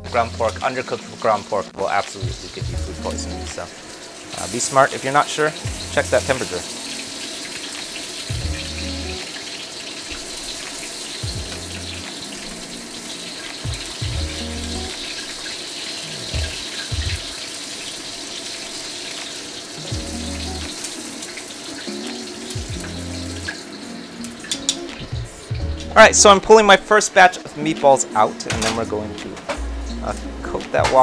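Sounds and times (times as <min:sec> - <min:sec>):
meatballs sizzling in oil: 0:00.2 - 0:26.0
lo-fi music with bass and beat: 0:02.0 - 0:03.7, 0:05.6 - 0:06.7, 0:08.2 - 0:09.3, 0:11.2 - 0:15.0, 0:16.1 - 0:17.4, 0:19.8 - 0:21.2, 0:21.9 - 0:26.4, 0:27.8 - 0:31.0.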